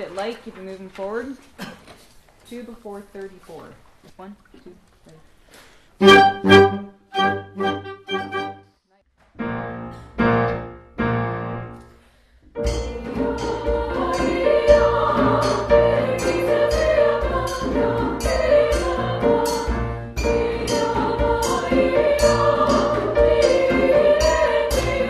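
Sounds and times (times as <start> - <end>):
choir singing with accompaniment: 6.0 - 8.6, 12.6 - 25.0.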